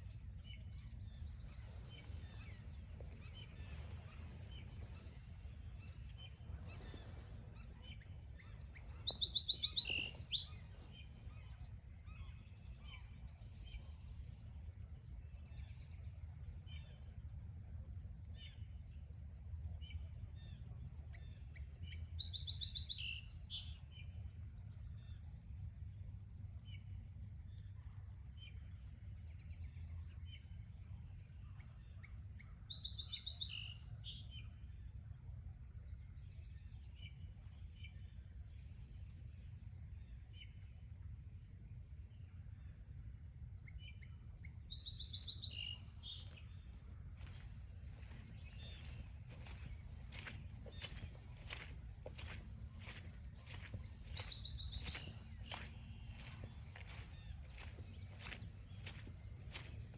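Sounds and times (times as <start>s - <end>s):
faint bird chirps: 0.0s - 14.0s, 43.7s - 59.9s
songbird singing: 0.0s - 17.3s, 19.8s - 24.2s, 31.3s - 34.6s, 43.6s - 59.9s
steady low rumble: 45.9s - 59.9s.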